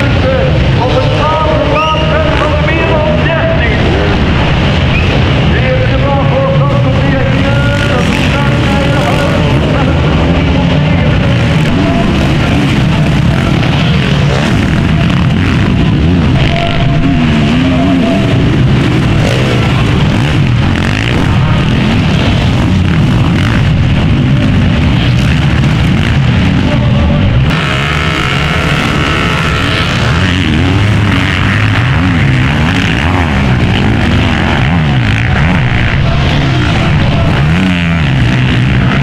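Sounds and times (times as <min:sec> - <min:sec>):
motocross bike engines revving: 0:00.0 - 0:39.0.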